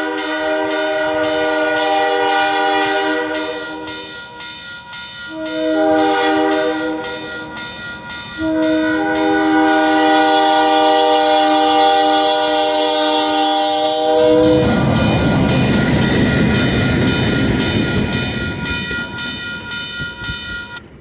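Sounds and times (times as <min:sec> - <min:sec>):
locomotive air horn blasts: 0:00.0 - 0:04.0, 0:05.3 - 0:07.3, 0:08.4 - 0:14.8.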